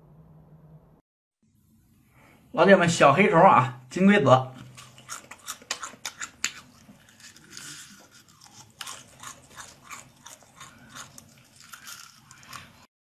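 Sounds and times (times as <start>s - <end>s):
crunching and chewing beetles: 4.5s - 12.9s.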